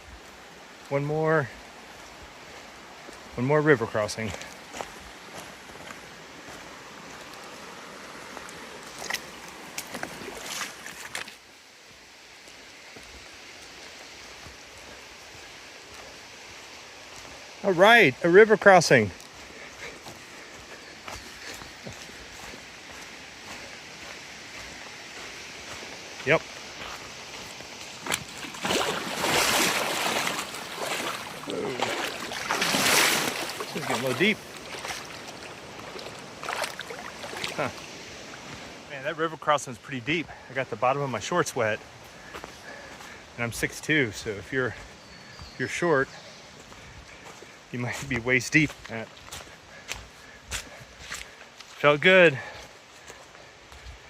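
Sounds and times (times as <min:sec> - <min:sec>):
river rushing: 0:00.0 - 0:44.4
legs wading through water: 0:01.5 - 0:39.1.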